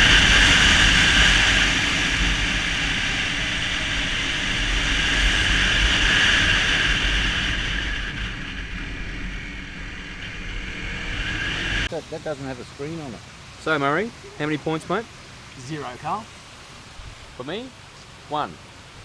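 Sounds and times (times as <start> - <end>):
wind noise: 0.0 - 12.0.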